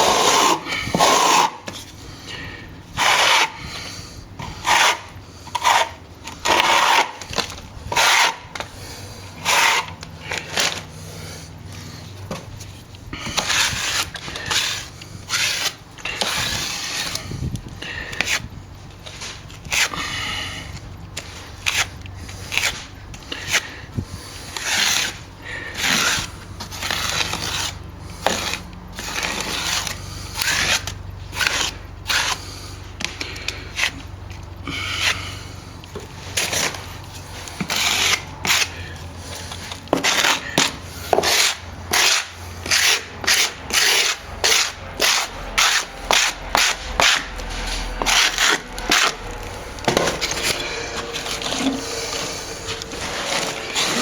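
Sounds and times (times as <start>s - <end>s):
hand tool scraping plaster: 0.0s - 54.0s
steady low hum: 0.0s - 54.0s.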